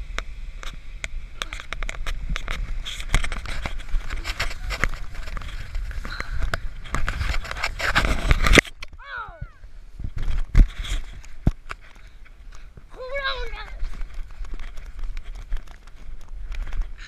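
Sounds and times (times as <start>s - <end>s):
inner tube scraping over snow: 0.8s - 8.6s.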